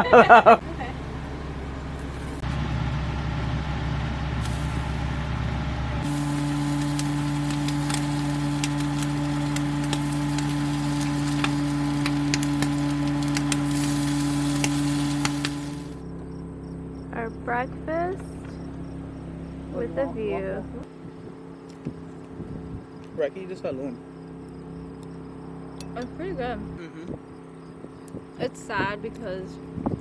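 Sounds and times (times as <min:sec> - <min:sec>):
mechanical hum: 0:00.0 - 0:30.0
crackling ticks: 0:06.7 - 0:16.0.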